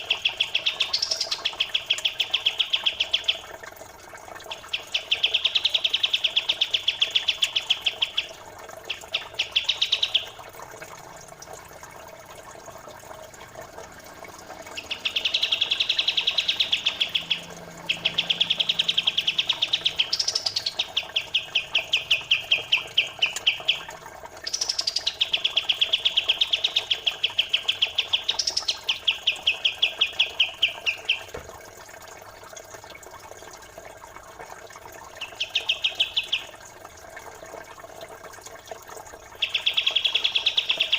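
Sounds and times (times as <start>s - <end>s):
faint flowing water: 0.0s - 40.9s
birds chattering trills: 14.6s - 23.9s.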